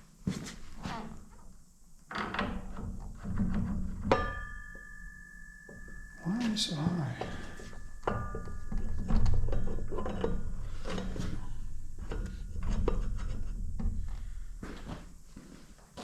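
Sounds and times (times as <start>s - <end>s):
short metallic ring: 4.1s - 12.0s
metal tools clinking and knocking: 5.7s - 13.1s.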